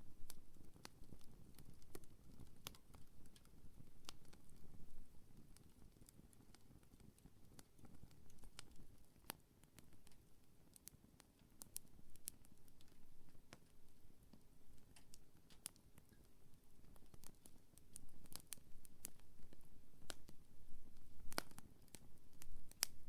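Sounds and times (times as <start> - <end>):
faint low rumble of flames: 0.0 - 23.0
campfire crackling and popping: 0.2 - 23.0.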